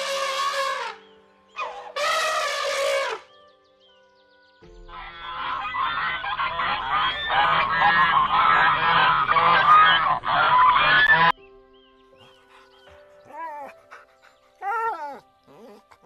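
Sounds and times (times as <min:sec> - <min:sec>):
geese honking: 0:04.9 - 0:11.4.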